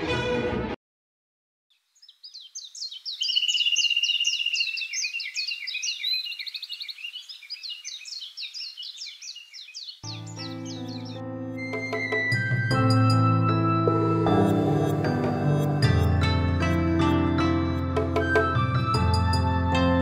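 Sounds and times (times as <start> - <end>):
music: 0.0 - 0.8, 10.0 - 20.0
birds chirping busily: 1.7 - 11.9.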